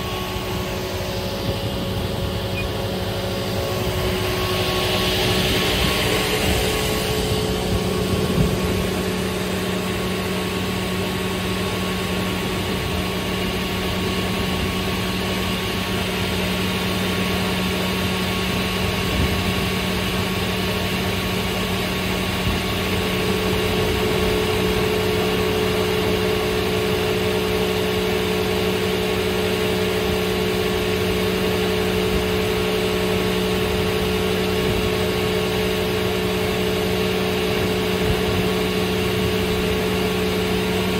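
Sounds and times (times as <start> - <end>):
higher tone: 0.0 - 9.7
saw running with steady hum: 0.0 - 40.9.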